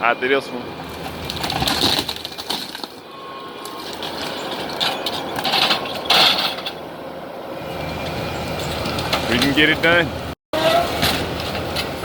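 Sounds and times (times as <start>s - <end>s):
demolition debris crunching: 0.7s - 6.9s.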